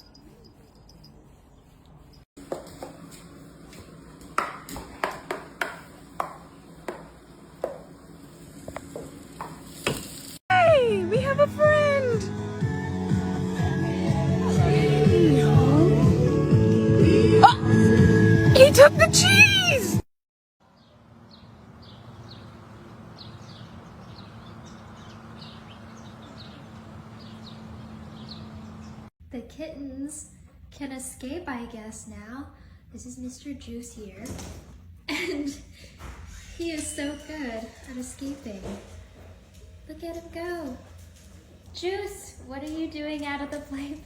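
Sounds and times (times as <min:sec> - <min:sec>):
small birds chirping: 0:20.6 - 0:29.1.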